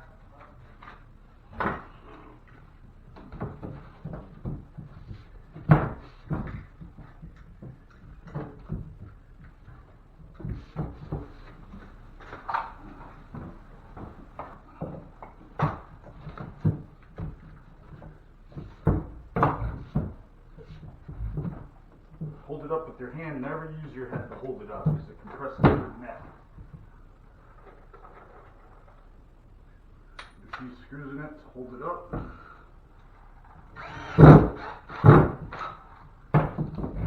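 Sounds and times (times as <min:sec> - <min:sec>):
drywall patch knocking and scraping: 0:03.1 - 0:22.6, 0:34.2 - 0:37.0.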